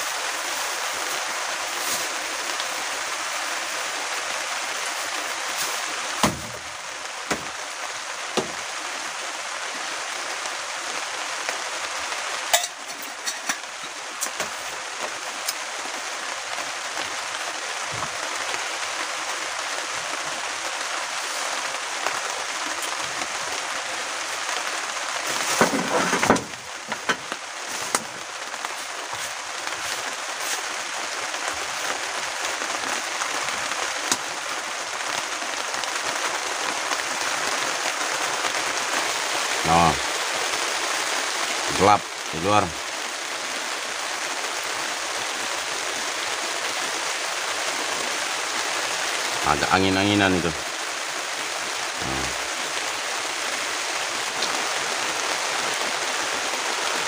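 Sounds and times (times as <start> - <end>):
heavy rain drumming on roof: 0.0 - 57.0.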